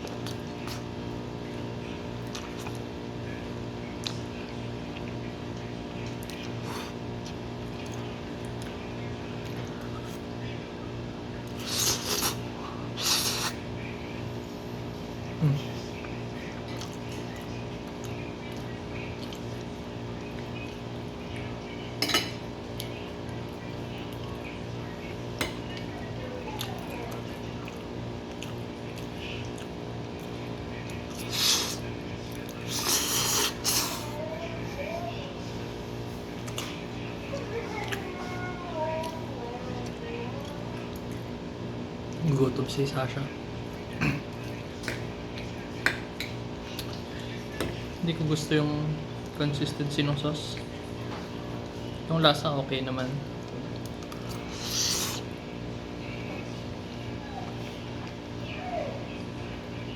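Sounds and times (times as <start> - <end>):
background hum: 0.0 - 59.9
pasta being slurped and chewed: 11.4 - 13.7, 27.6 - 34.2, 53.7 - 55.4
person slurping pasta: 11.6 - 12.4, 13.0 - 13.6, 32.7 - 34.1, 54.3 - 55.3.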